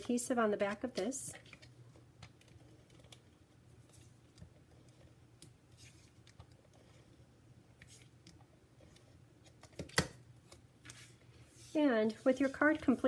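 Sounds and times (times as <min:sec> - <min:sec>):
paper handling: 0:10.5 - 0:13.0.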